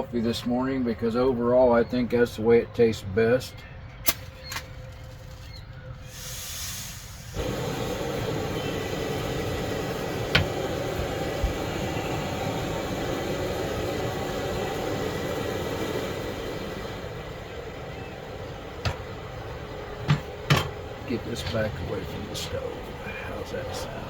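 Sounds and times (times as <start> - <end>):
camp stove igniter clicks: 4.0 - 4.7, 6.2 - 12.7
gas burner hissing: 6.0 - 24.0.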